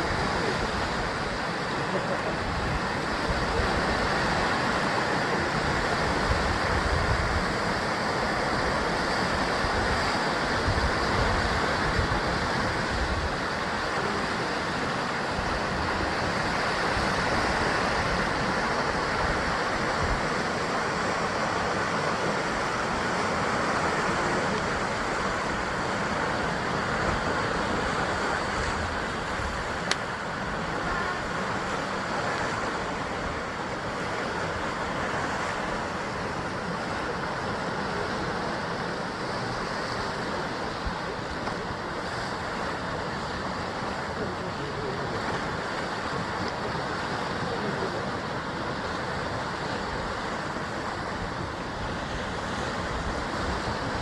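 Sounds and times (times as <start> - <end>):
sea waves breaking on rocks: 0.0 - 54.0
wind buffeting microphone: 2.2 - 54.0.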